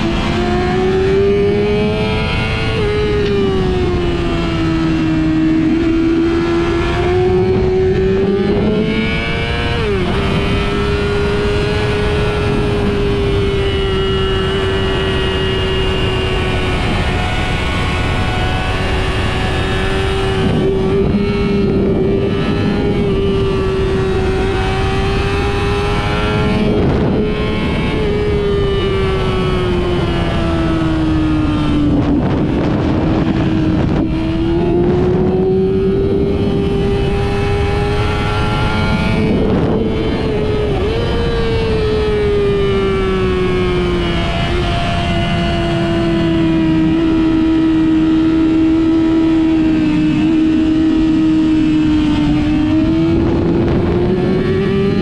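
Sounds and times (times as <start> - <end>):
car engine at high revs: 0.0 - 55.0
road and wind noise: 0.0 - 55.0.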